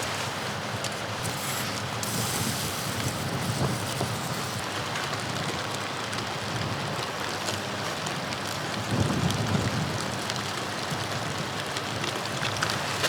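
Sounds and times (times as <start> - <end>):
blizzard wind hissing: 0.0 - 4.8.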